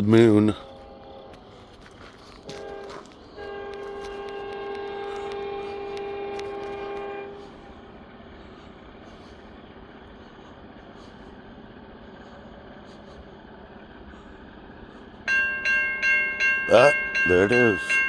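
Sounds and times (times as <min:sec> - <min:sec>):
locomotive air horn: 0:00.0 - 0:09.4, 0:16.1 - 0:18.0
steady low rumble: 0:00.0 - 0:18.0.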